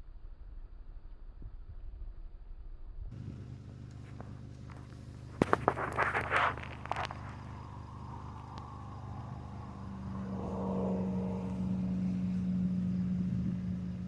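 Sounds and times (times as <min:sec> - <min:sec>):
droning tone: 0:00.0 - 0:14.0
motor humming: 0:03.2 - 0:14.0.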